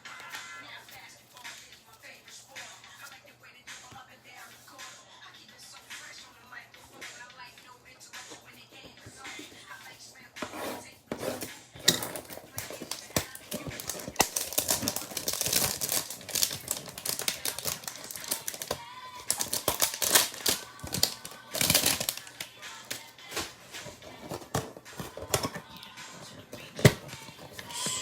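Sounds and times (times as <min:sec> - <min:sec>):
background music: 0:00.0 - 0:28.0
card wrappers crinkling: 0:11.9 - 0:25.9.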